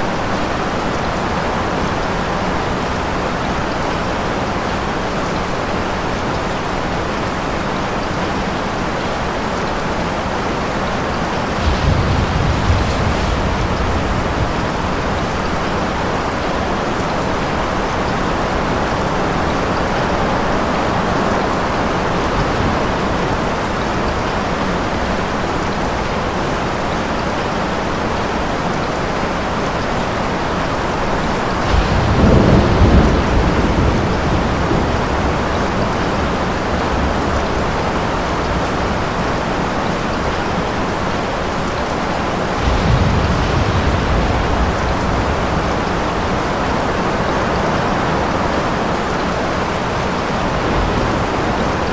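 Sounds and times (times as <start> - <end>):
heavy rain: 0.0 - 51.9
thunder rumbling: 10.6 - 24.3, 30.5 - 39.3, 42.2 - 51.9.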